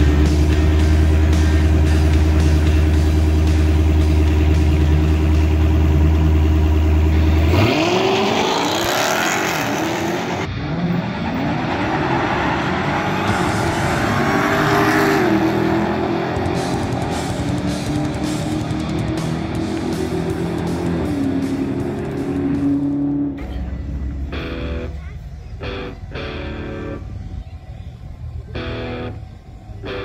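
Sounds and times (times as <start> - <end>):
car engine revving and accelerating: 0.0 - 23.4
second car engine accelerating: 0.0 - 30.0.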